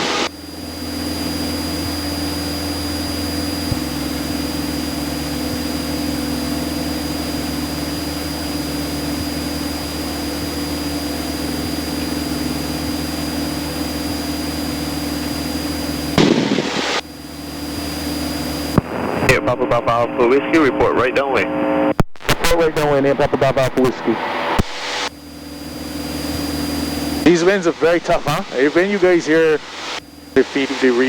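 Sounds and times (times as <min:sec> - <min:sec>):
light aircraft engine droning: 0:00.0 - 0:21.4, 0:22.8 - 0:31.0
short loud burst of noise: 0:16.2 - 0:17.0.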